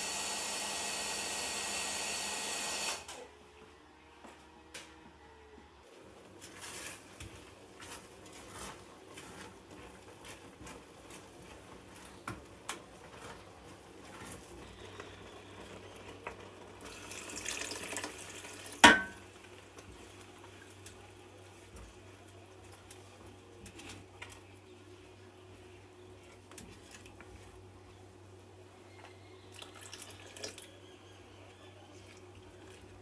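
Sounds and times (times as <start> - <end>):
water running: 16.8 - 19.6.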